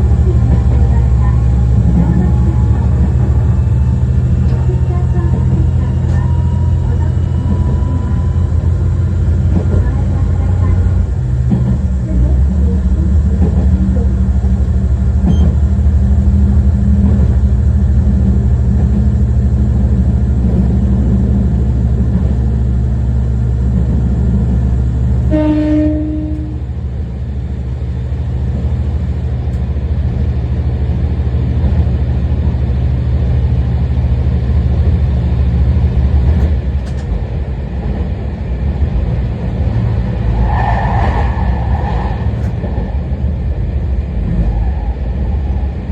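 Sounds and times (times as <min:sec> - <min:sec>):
wheel and rail noise: 0:00.0 - 0:25.4, 0:26.3 - 0:45.9
diesel railcar engine drone: 0:00.0 - 0:45.9
train horn: 0:25.3 - 0:26.7.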